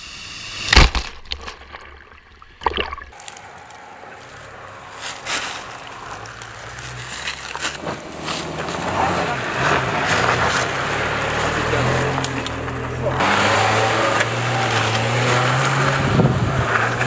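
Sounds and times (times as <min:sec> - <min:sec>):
water sloshing: 0:01.0 - 0:04.2
car engine running: 0:03.4 - 0:17.0.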